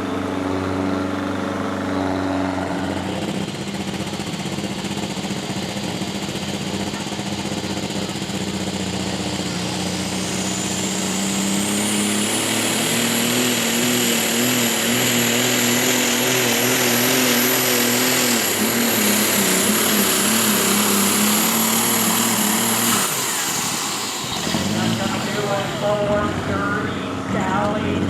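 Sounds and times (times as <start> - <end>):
high engine whine: 0.0 - 28.0
tractor engine running flat out: 0.0 - 28.0.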